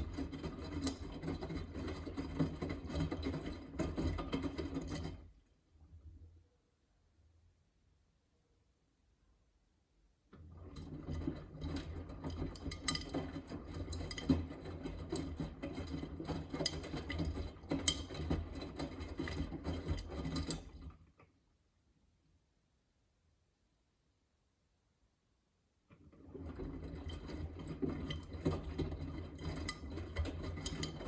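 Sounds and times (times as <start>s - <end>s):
washing machine motor hum: 10.4s - 20.9s, 25.9s - 31.0s.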